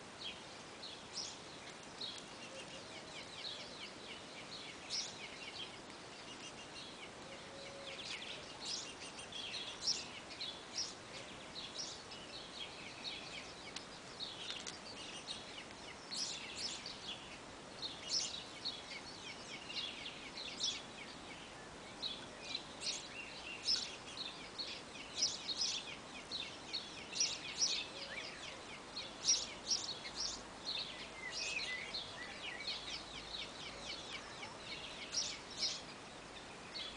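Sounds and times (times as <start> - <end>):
faint steady hiss: 0.0 - 36.9
small birds chirping: 0.0 - 36.9.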